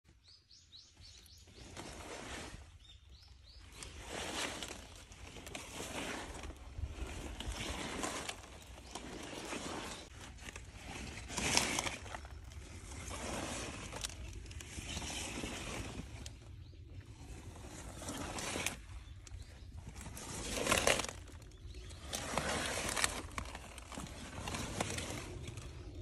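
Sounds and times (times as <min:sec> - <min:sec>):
outdoor noise: 0:00.0 - 0:26.0
small bird chirping: 0:00.1 - 0:02.0.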